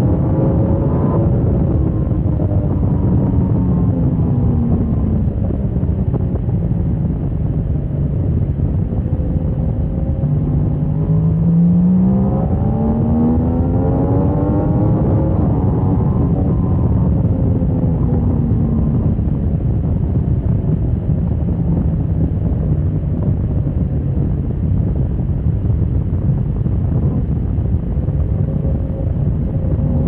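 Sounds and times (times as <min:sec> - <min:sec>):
motorcycle engine accelerating: 0:00.0 - 0:30.0
wind on microphone: 0:00.0 - 0:30.0.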